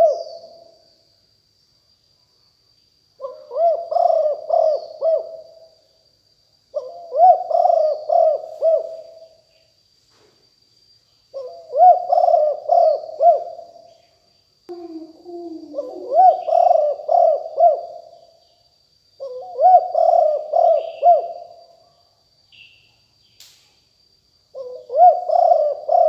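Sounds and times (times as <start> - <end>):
dove cooing: 0.0 - 0.6, 3.2 - 5.7, 6.7 - 9.3, 11.4 - 13.7, 14.7 - 18.1, 19.2 - 21.5, 24.6 - 26.0
thin steady high whine: 0.0 - 26.0.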